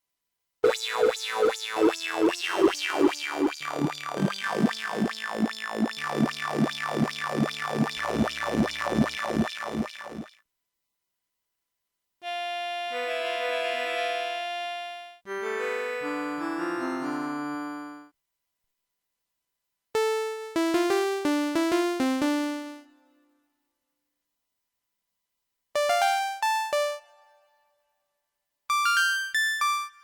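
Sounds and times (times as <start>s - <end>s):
plucked synth notes: 0.7s - 10.2s
synthesizer held chords: 0.7s - 10.3s.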